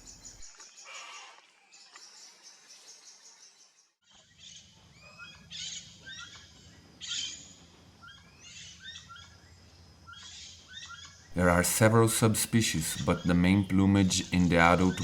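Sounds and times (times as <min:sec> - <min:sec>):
birds chirping and whistling: 0:12.7 - 0:15.0.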